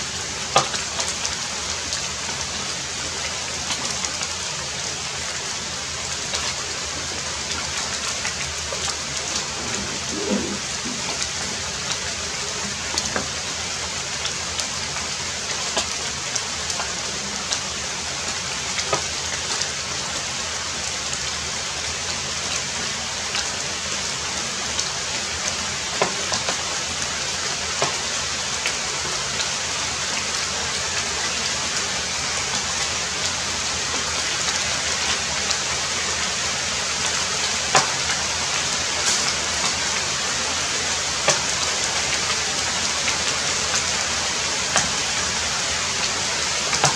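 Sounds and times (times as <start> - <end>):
heavy rain falling: 2.0 - 16.0.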